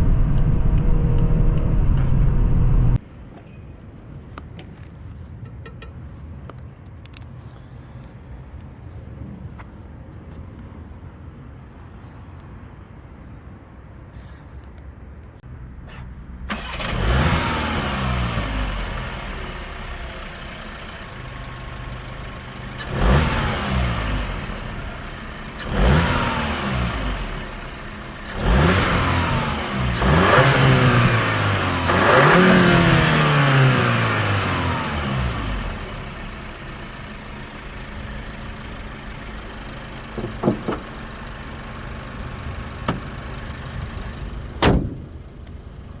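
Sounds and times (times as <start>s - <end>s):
car engine revving and idling: 0.0s - 3.0s, 15.9s - 46.0s.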